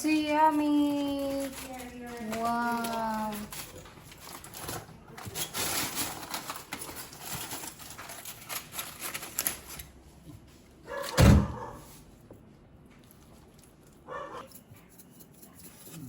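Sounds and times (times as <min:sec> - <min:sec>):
utensils and dishes clinking: 0:00.0 - 0:10.0, 0:13.6 - 0:16.0
dog barking: 0:10.8 - 0:11.9, 0:14.1 - 0:14.5.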